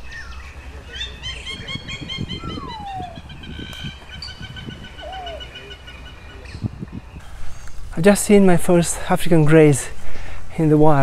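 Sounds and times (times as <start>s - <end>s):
birds chirping: 0.0s - 9.1s
falling bird whistle: 1.9s - 5.7s.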